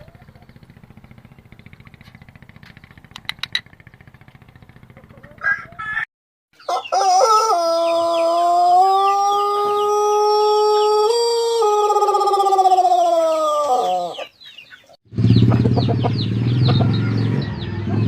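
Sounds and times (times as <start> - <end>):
small birds chirping: 0.0 - 5.8, 6.6 - 7.0, 12.3 - 18.0
sharp clicks: 2.0 - 3.7
rooster crowing: 5.4 - 14.3, 17.0 - 18.0.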